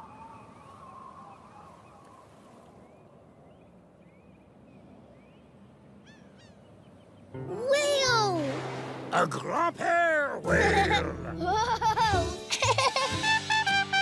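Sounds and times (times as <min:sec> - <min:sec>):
faint birds chirping: 0:00.0 - 0:07.6.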